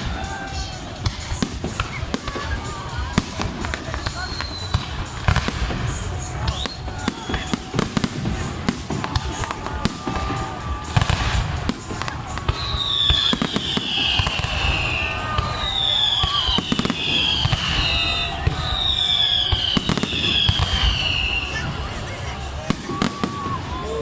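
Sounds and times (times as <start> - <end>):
fireworks bangs and pops: 0.0 - 24.0
high falling whistles: 4.1 - 5.2, 12.5 - 21.7.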